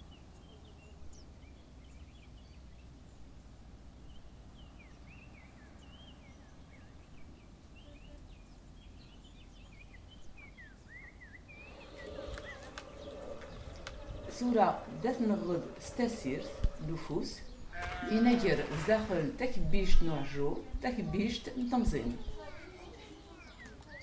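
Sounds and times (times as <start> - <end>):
small birds chirping: 0.0 - 24.0
low outdoor rumble: 11.4 - 20.8.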